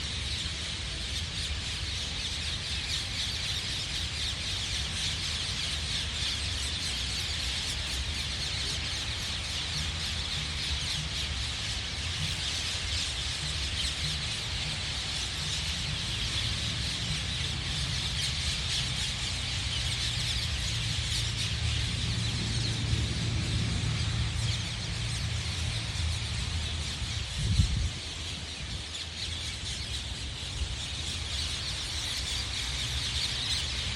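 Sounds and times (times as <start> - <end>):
birds calling: 0.0 - 33.9
steady high-pitched hiss: 0.0 - 33.9
low uneven rumble: 9.3 - 29.4.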